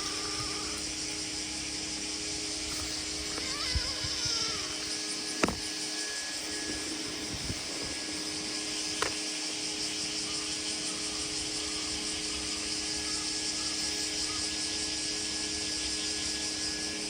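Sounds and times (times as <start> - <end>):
high hiss: 0.0 - 17.0
sharp click: 5.4 - 5.7.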